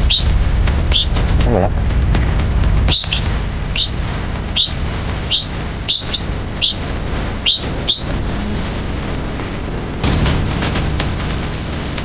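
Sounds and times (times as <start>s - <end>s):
bird chirping: 0.0s - 1.2s, 2.9s - 8.6s
low rumble: 0.0s - 12.0s.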